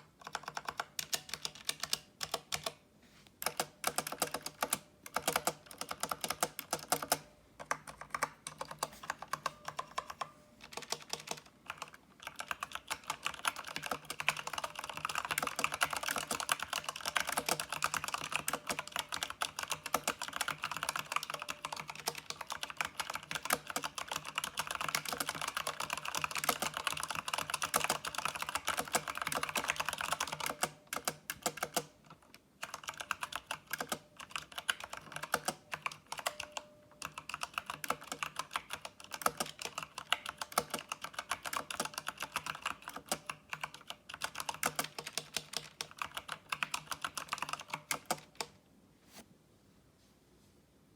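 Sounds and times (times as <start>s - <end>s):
mechanical keyboard typing: 0.0s - 2.8s, 3.4s - 48.6s.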